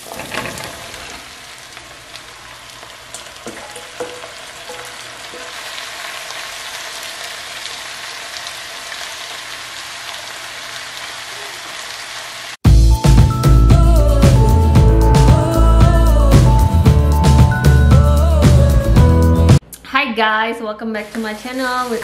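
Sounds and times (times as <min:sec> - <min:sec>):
vegetables sizzling in a pot: 0:00.0 - 0:12.6, 0:21.0 - 0:22.0
wooden spoon knocking against pot: 0:03.5 - 0:05.6.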